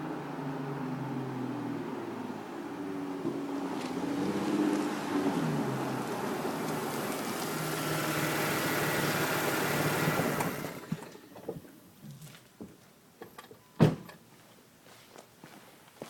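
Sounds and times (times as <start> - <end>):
car engine running hard with whine: 0.0 - 11.0.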